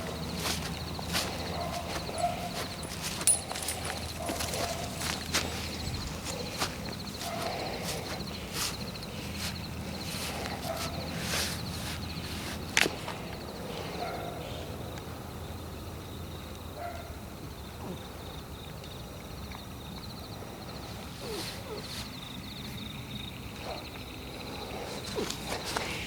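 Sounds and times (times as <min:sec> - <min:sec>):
footsteps crunching on forest floor: 0:00.0 - 0:13.2, 0:24.9 - 0:26.0
insects chirping: 0:00.0 - 0:26.0.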